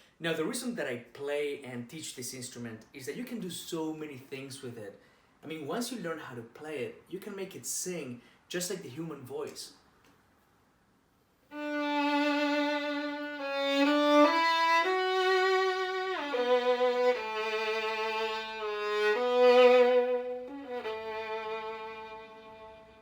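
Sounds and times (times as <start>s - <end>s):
solo violin melody: 11.5s - 23.0s.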